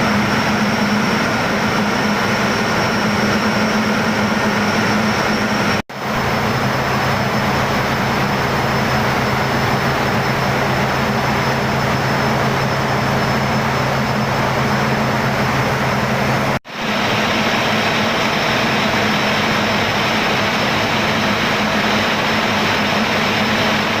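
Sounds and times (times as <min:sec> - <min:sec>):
gas engine running steadily: 0:00.0 - 0:24.0.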